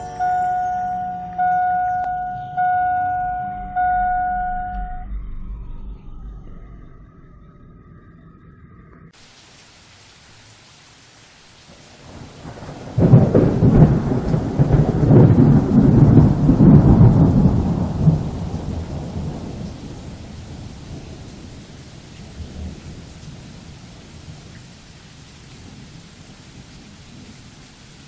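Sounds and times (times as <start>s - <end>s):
steady rain: 0.0s - 4.4s, 9.1s - 28.0s
thunder rumbling: 0.0s - 9.2s, 11.7s - 24.5s.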